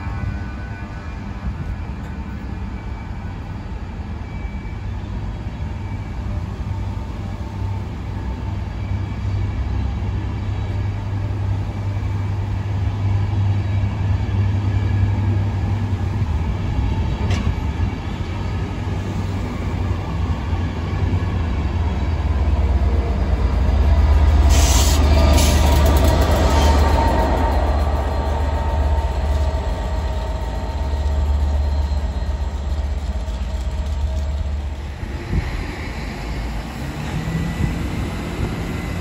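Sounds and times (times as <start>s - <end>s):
diesel locomotive: 0.0s - 39.0s
train coaches rumbling past: 0.0s - 39.0s
air hiss: 24.5s - 25.6s.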